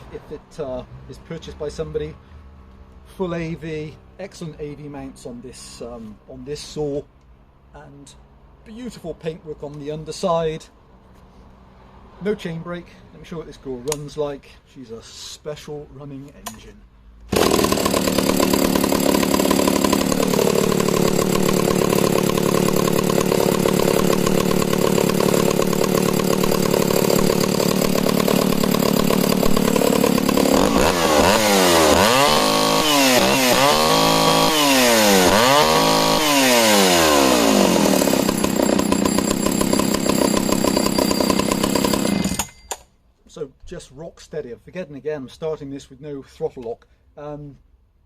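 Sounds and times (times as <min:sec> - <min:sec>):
chainsaw engine idling and revving: 0:17.3 - 0:42.6.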